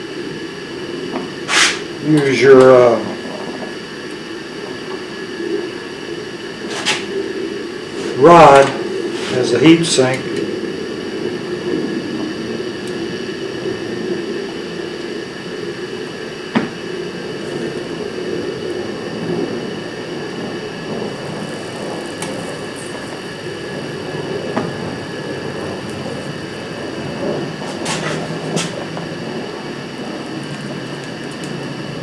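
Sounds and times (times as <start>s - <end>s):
welding torch hissing: 0.0s - 32.0s.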